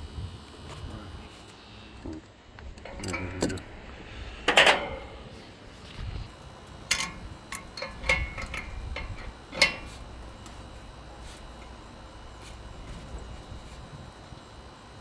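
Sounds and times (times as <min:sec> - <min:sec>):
scraping: 0:04.4 - 0:14.5
metal tools clinking: 0:04.5 - 0:05.3, 0:06.3 - 0:13.7.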